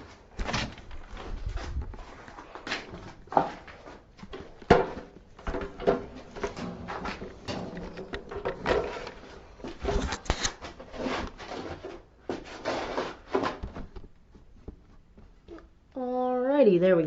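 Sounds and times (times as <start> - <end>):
equipment knocking and rubbing: 0.0 - 15.7.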